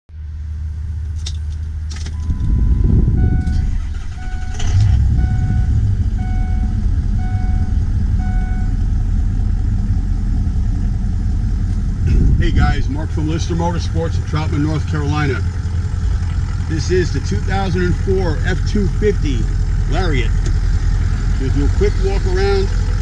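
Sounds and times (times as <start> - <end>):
diesel engine running: 0.1 - 23.0
warning chime beeping: 2.2 - 8.8.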